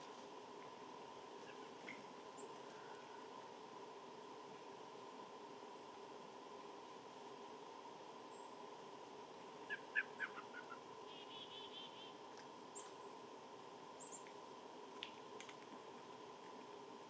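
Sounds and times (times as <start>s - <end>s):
wild birds calling: 9.6s - 12.2s.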